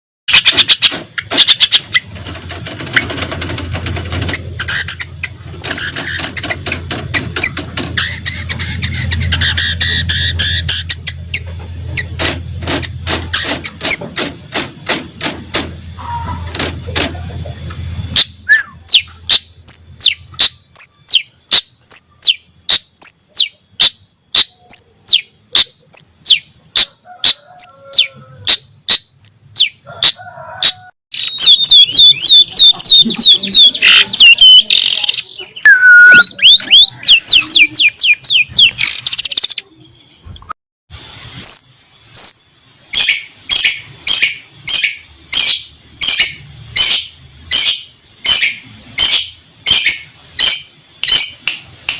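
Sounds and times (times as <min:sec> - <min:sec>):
shrike singing: 0:31.1 - 0:40.2.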